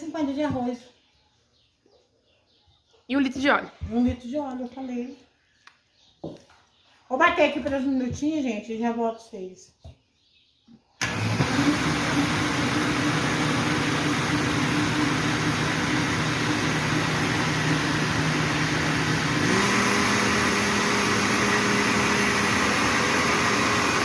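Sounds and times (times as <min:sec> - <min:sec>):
kitchen blender running: 0:11.0 - 0:24.0.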